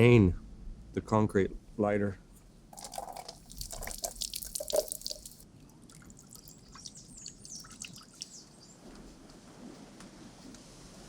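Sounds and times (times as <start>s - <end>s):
liquid splashing and dripping: 2.8s - 8.7s
faint high bird chirps: 6.3s - 8.8s.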